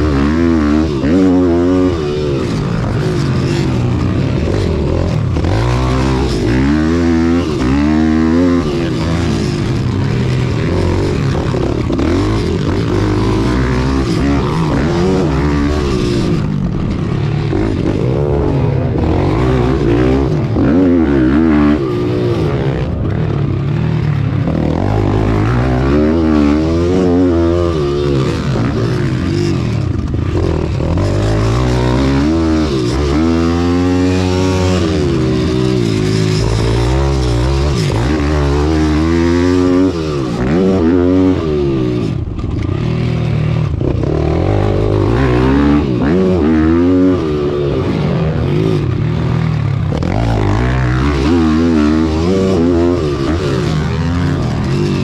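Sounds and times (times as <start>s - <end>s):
pit bike engines revving: 0.0s - 55.0s.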